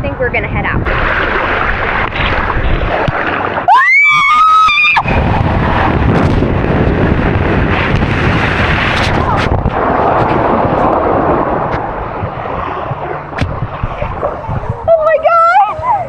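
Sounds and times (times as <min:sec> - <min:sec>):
rushing wind and water: 0:00.0 - 0:16.0
high-pitched scream: 0:03.7 - 0:05.1.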